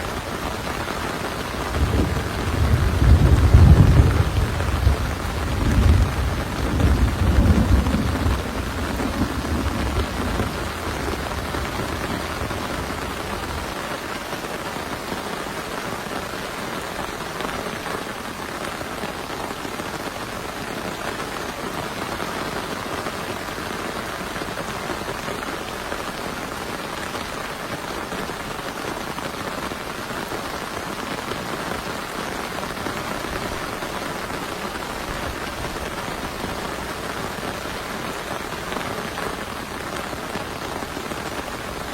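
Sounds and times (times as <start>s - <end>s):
heavy rain falling: 0.0s - 41.9s
low thunder rumble: 1.6s - 13.8s.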